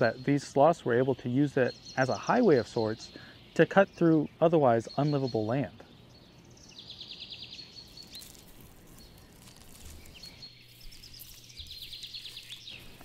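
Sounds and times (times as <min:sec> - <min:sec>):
thin bird chirps: 0:00.0 - 0:13.0.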